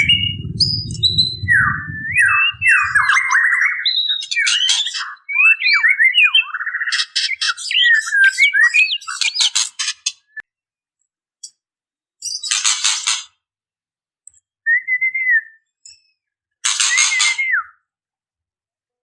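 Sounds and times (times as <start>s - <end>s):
bird calling with rattles and whistles: 0.0s - 10.4s, 12.2s - 13.4s, 15.8s - 17.8s.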